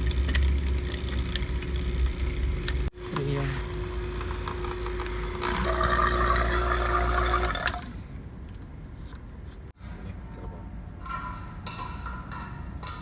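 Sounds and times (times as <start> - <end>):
fluid hissing through hose: 5.4 - 8.0.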